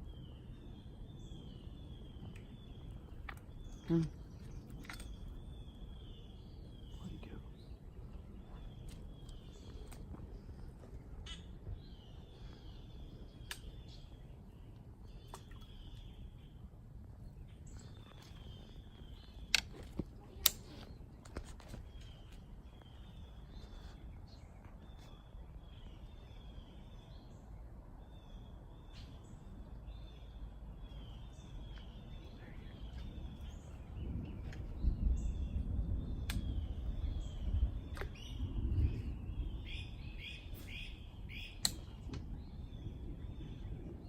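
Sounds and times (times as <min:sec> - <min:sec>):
birds calling: 0:00.0 - 0:27.3, 0:28.3 - 0:44.0
low rumble: 0:29.8 - 0:44.0
sharp clicks: 0:41.6 - 0:41.9.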